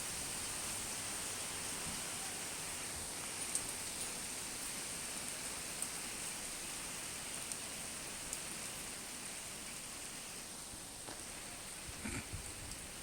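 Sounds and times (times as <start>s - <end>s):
rain hissing: 0.0s - 13.0s
raindrops ticking: 3.1s - 8.9s, 11.0s - 13.0s.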